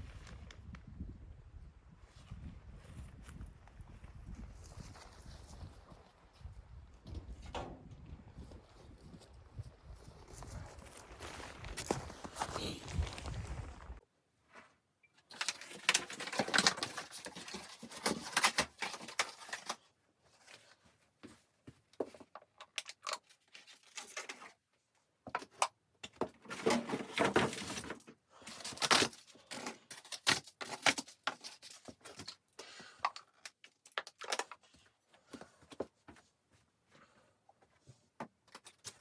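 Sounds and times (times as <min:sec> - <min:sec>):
rustling and crinkling: 0:02.1 - 0:39.0
small clicks and clatters: 0:22.0 - 0:24.6, 0:28.6 - 0:34.9.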